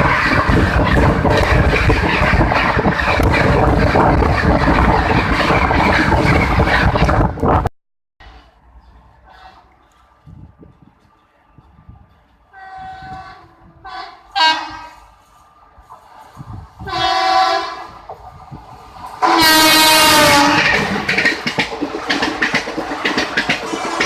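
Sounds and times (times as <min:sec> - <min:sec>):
train passing clatter: 0:00.0 - 0:24.0
locomotive horn blasts: 0:12.5 - 0:15.1, 0:16.8 - 0:18.0, 0:19.2 - 0:20.8.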